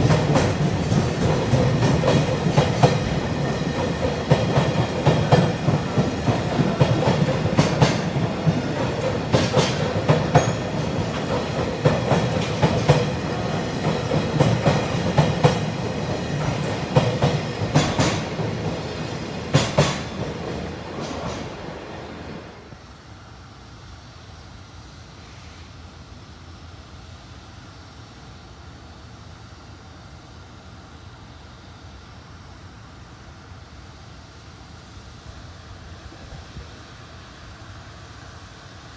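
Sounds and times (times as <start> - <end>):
train wheels clacking: 0.0 - 22.8
freight train rumble: 0.0 - 23.1.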